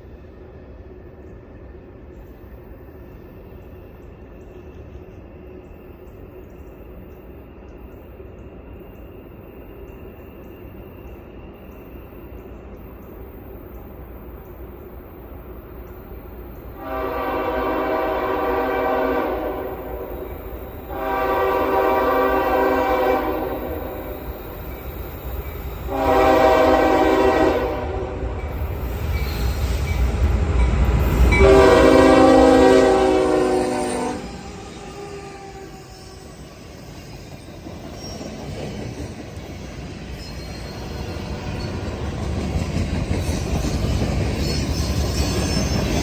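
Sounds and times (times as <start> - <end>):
low locomotive rumble: 12.4 - 36.4
locomotive air horn blasts: 16.8 - 20.2, 20.9 - 24.1, 25.9 - 28.3, 31.4 - 34.3.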